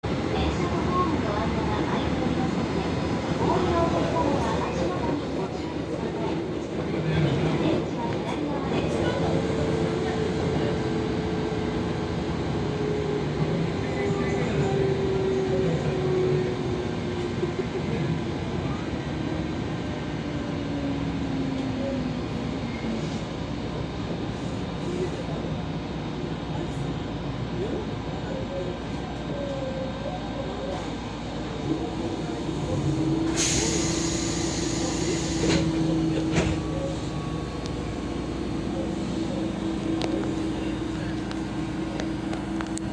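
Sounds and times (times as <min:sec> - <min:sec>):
train motor hum: 0:31.2 - 0:42.9
loud hiss of air: 0:33.2 - 0:35.8.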